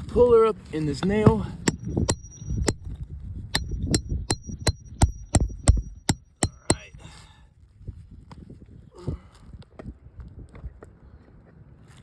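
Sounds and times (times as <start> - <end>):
hammer striking metal: 1.7 - 2.9, 3.6 - 6.9.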